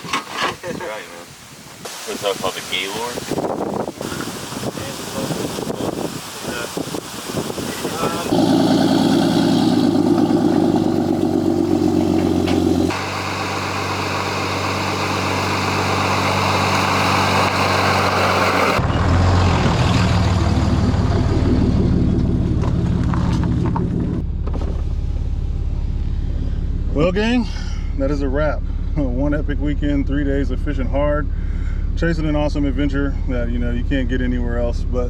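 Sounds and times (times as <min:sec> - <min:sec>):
engine humming: 0:07.8 - 0:35.0.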